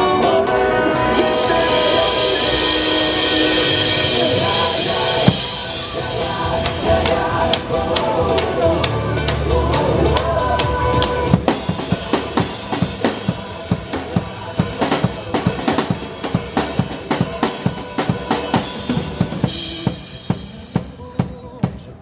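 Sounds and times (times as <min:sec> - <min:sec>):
rock music: 0:00.0 - 0:22.0
drums and cymbals beat: 0:01.1 - 0:22.0.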